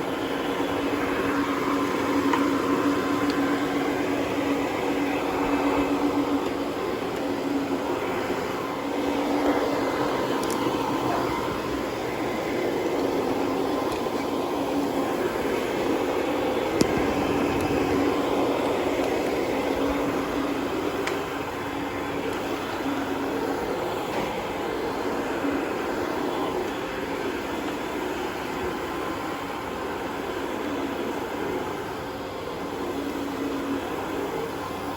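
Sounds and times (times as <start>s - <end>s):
carpet cleaning machine humming: 0.0s - 34.9s.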